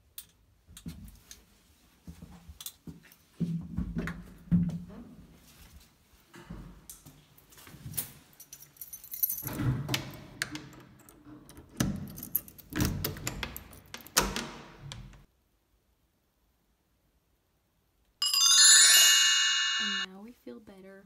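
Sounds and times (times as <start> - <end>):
keys jangling in door lock: 8.4 - 15.2.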